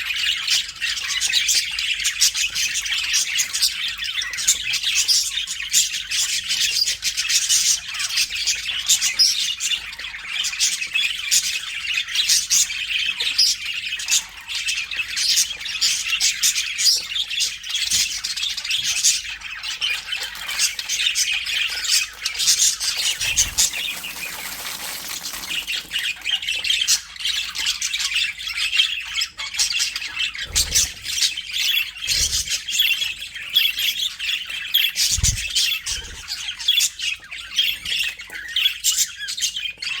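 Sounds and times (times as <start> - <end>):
budgerigars chirping and squawking: 0.0 - 40.0.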